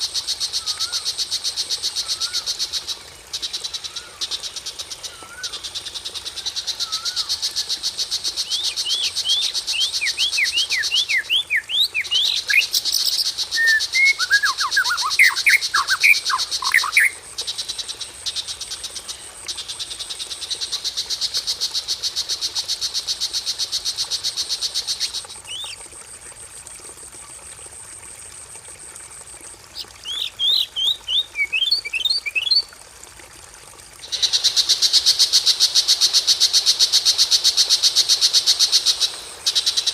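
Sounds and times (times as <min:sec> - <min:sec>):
down-slurred whistled bird notes: 0:13.6 - 0:17.1.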